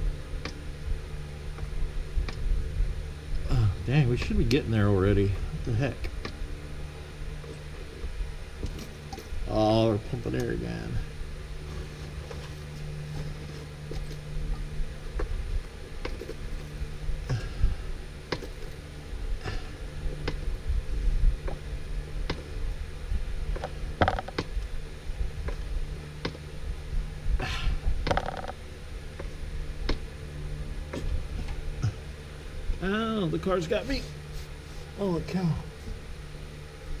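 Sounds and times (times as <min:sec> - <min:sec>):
steady low hum: 0:00.0 - 0:37.0
hand pump creaking and clicking: 0:28.0 - 0:28.6.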